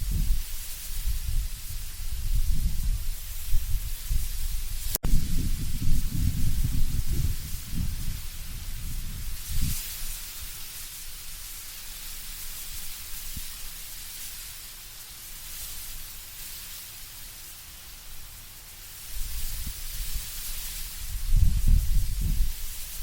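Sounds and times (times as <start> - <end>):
low wind gusts: 0.0 - 11.4, 19.1 - 23.0
wind rustling leaves: 0.0 - 23.0.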